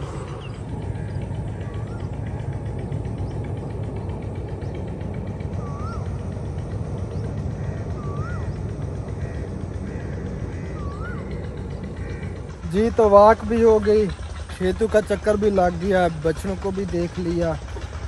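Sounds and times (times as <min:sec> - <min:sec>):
bird whistling: 0:00.0 - 0:03.4, 0:05.4 - 0:12.4
low rumble: 0:00.0 - 0:18.0.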